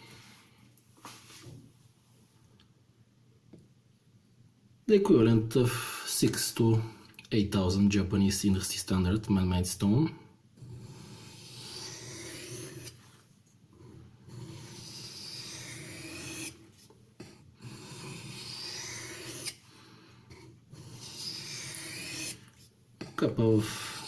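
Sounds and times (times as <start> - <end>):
knife scraping on whetstone: 10.6 - 13.1, 13.8 - 19.6, 20.3 - 24.0.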